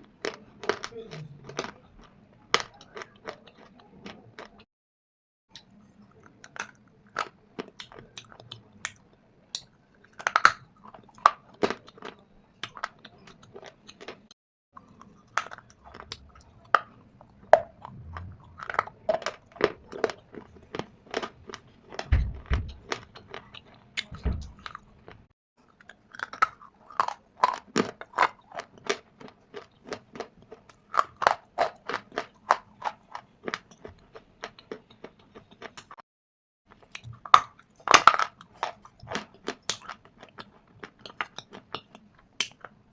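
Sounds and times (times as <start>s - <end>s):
stone being chewed crackling: 14.8s - 22.1s
deep thuds: 17.6s - 19.8s, 22.0s - 23.0s, 24.1s - 24.7s.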